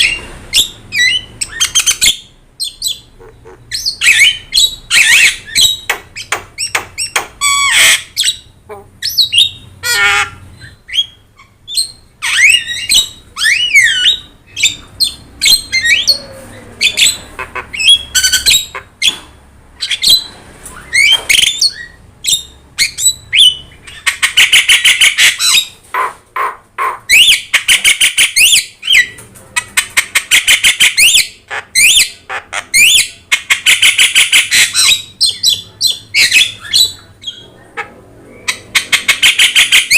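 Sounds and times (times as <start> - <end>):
bird singing whistles and squawks: 3.7 - 9.6, 10.6 - 17.2, 19.8 - 25.7.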